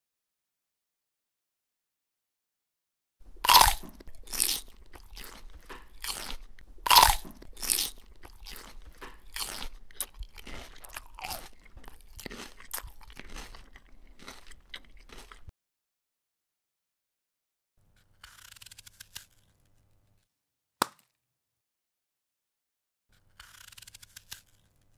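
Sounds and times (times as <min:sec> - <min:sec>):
crunching apple bites: 0:03.2 - 0:15.5, 0:18.2 - 0:19.5, 0:23.2 - 0:24.9.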